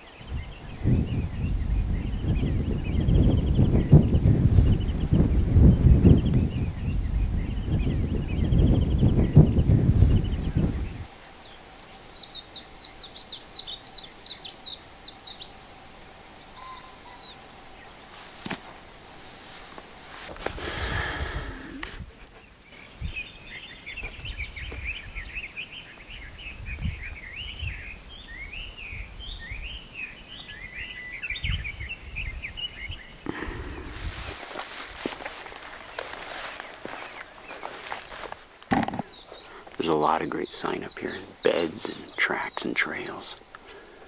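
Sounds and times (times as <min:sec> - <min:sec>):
songbirds singing: 0:00.0 - 0:44.0
wind rumble on microphone: 0:00.1 - 0:11.2, 0:20.4 - 0:22.3, 0:22.9 - 0:23.5, 0:24.1 - 0:25.4, 0:26.1 - 0:39.2.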